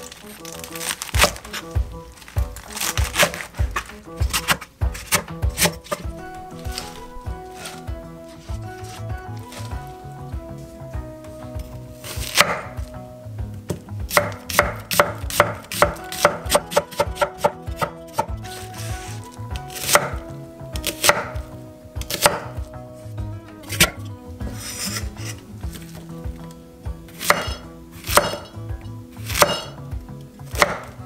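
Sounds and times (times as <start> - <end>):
knife chopping on wooden board: 1.0 - 9.7, 12.0 - 12.9, 13.7 - 20.2, 20.8 - 22.6, 23.7 - 26.0, 27.1 - 28.6, 29.2 - 29.8, 30.5 - 31.0.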